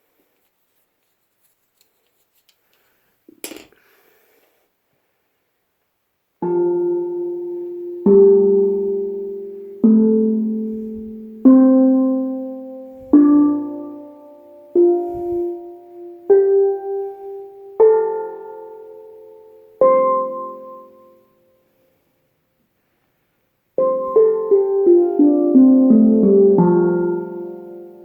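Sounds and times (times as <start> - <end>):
steel drum notes: 6.4 - 16.9.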